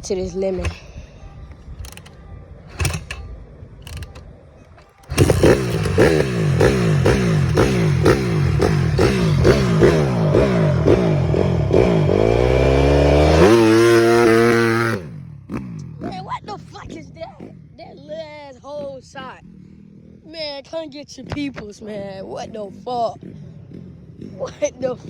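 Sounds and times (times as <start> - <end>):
dirt bike engine revving: 3.8 - 25.0.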